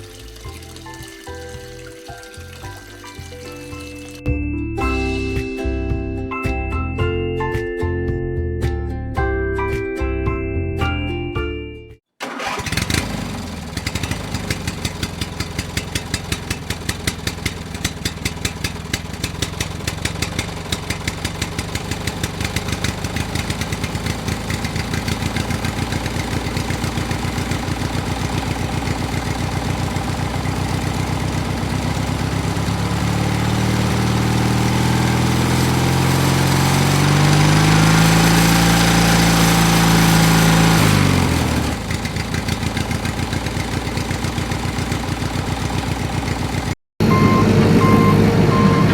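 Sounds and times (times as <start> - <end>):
small tractor engine chugging: 12.2 - 48.9.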